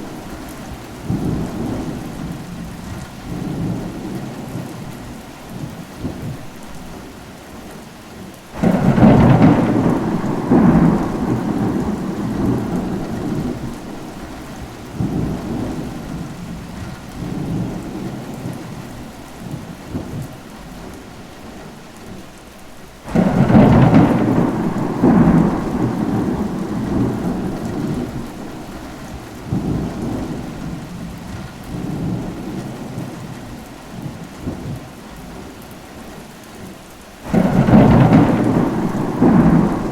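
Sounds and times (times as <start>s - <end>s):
steady rain: 0.0s - 39.9s
thunder rolling: 8.6s - 18.7s, 23.1s - 33.4s, 37.3s - 39.9s.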